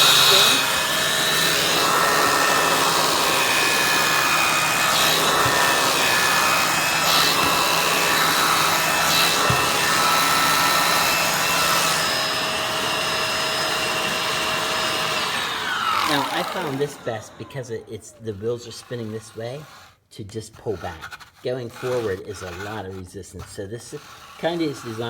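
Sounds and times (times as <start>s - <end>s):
upright vacuum running with whine: 0.0s - 17.8s
brush rubbing over surface: 18.3s - 25.0s.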